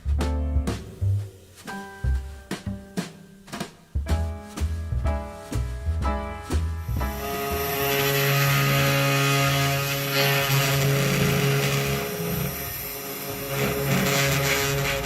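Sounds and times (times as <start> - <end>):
power tool whining: 7.1 - 15.0.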